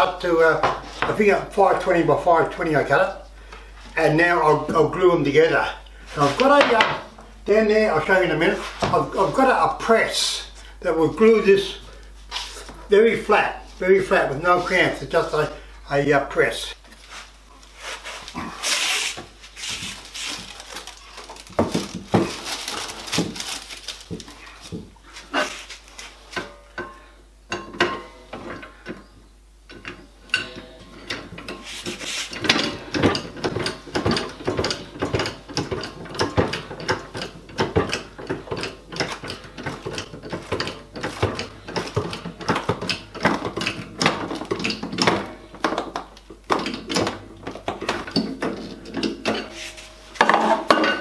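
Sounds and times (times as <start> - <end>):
workshop clicking and knocking: 6.4 - 7.2, 19.2 - 25.0, 26.3 - 29.0, 29.7 - 51.0.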